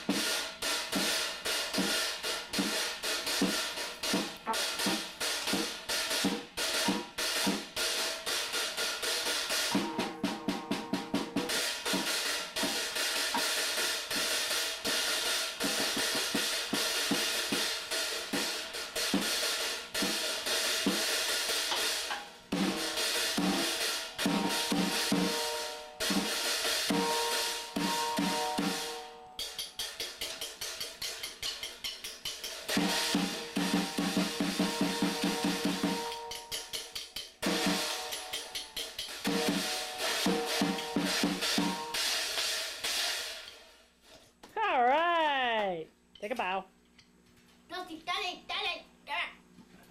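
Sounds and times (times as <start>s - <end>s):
drum kit played fast: 0.0s - 43.8s.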